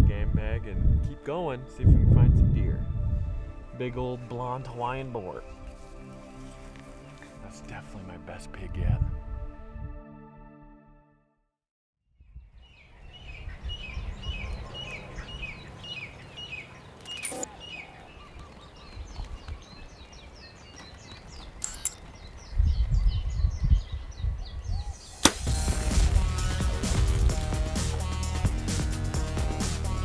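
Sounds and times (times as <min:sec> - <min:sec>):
music: 0:00.0 - 0:11.6, 0:25.2 - 0:30.0
small birds chirping: 0:12.2 - 0:25.3
sharp crack: 0:25.1 - 0:28.5.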